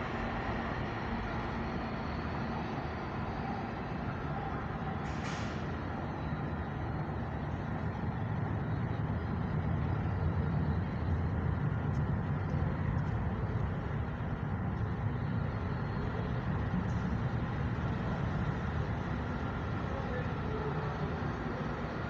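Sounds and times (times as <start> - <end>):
electric train rumbling: 0.0 - 22.0.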